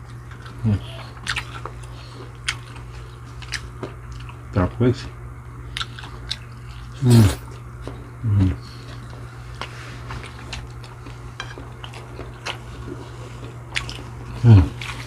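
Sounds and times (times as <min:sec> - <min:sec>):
chewing: 0:00.0 - 0:04.5, 0:05.6 - 0:15.0
steady low hum: 0:00.0 - 0:15.0.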